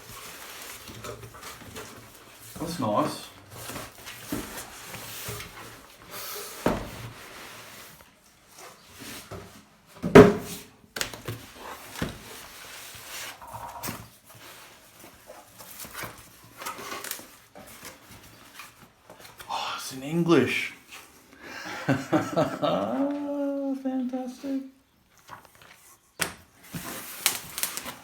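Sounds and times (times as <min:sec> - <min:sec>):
packaging rustling and scraping: 0:00.0 - 0:10.0, 0:11.1 - 0:19.5, 0:25.0 - 0:28.0.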